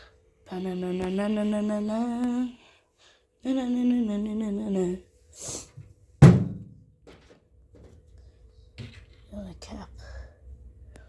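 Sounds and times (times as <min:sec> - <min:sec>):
person humming: 0:03.4 - 0:05.0.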